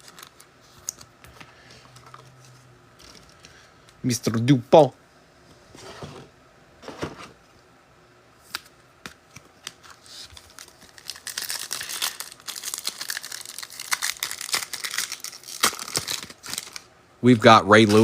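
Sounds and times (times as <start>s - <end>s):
foil wrapper crinkling and tearing: 0.0s - 1.0s, 9.7s - 18.0s.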